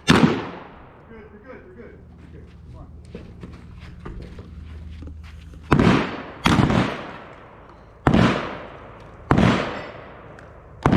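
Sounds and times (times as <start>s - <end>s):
gunshots with echo: 0.0s - 0.9s, 5.7s - 10.9s.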